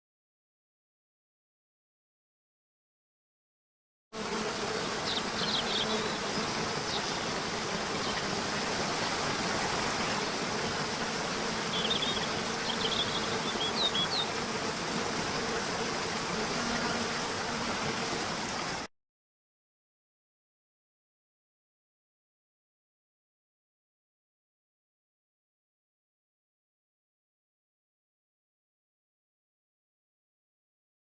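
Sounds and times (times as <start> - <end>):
flying insects buzzing: 4.2 - 18.9.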